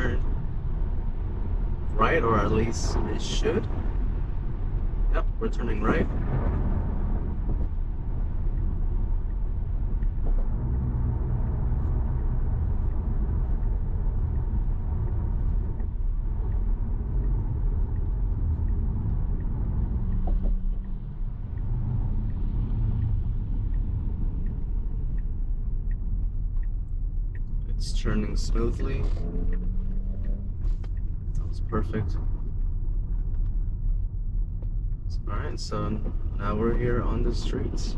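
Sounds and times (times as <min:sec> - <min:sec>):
tyres rumbling on wet road: 0:00.0 - 0:37.9.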